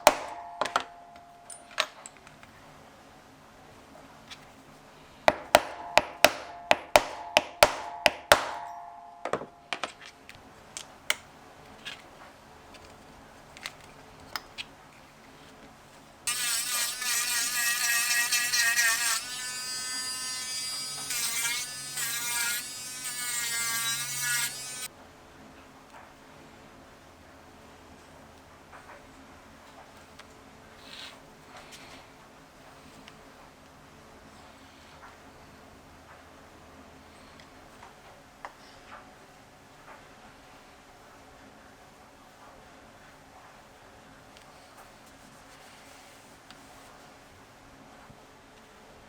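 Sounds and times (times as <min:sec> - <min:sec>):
sharp metallic strikes: 0:00.0 - 0:01.7
electric hand tool buzzing: 0:16.3 - 0:24.9.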